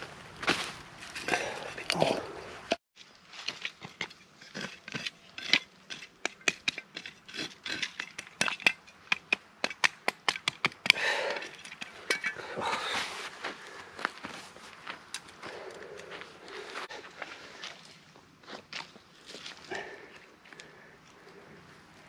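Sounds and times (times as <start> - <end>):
metal camp kit clinking: 11.3 - 13.0.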